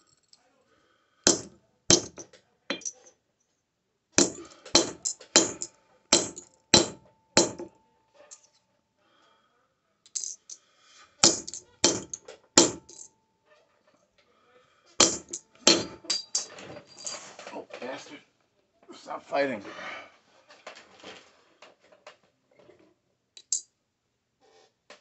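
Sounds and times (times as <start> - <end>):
hammer striking metal on anvil: 1.3 - 2.9, 4.2 - 7.7, 11.2 - 13.0, 15.0 - 16.5.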